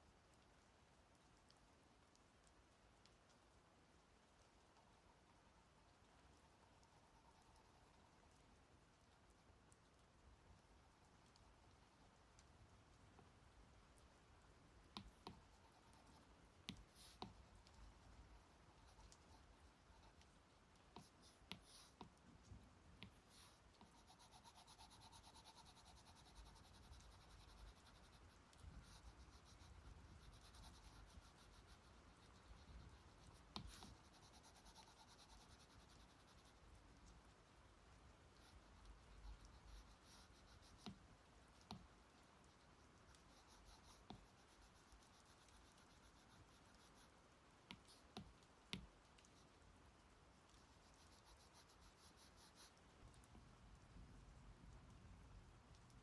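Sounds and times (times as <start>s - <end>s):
low hiss: 0.0s - 56.0s
stylus scratching on a screen: 4.4s - 8.5s, 10.5s - 12.2s, 15.0s - 20.3s, 21.0s - 22.1s, 23.0s - 49.5s, 50.5s - 52.8s
stylus tapping on a screen: 15.0s - 19.4s.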